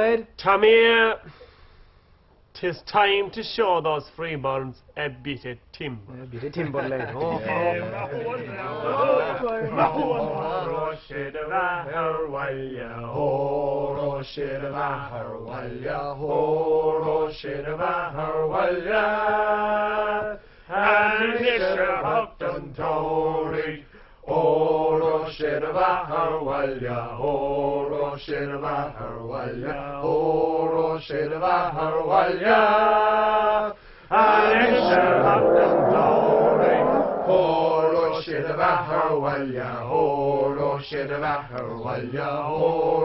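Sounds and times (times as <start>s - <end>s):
long held sung notes: 34.1s - 38.7s
low steady drone: 34.8s - 37.5s.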